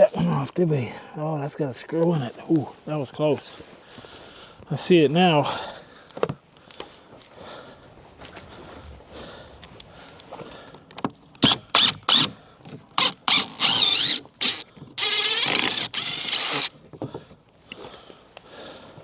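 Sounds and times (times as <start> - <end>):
nails squealing in wooden board: 11.4 - 16.7.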